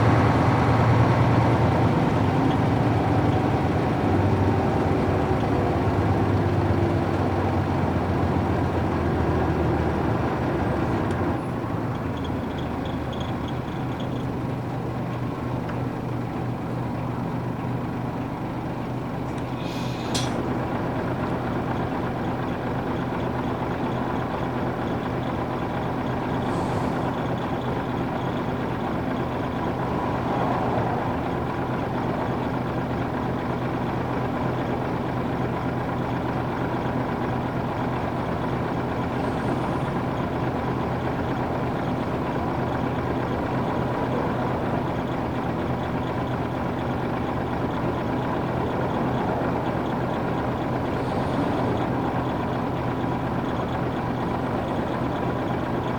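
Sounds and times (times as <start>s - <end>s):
diesel bus engine running: 0.0s - 55.9s.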